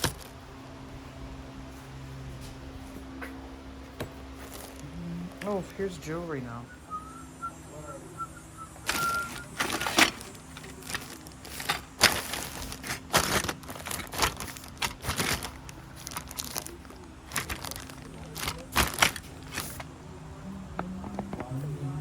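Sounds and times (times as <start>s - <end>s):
rustling and crinkling: 0.0s - 6.2s, 8.8s - 20.0s
faint steady hum: 0.0s - 22.0s.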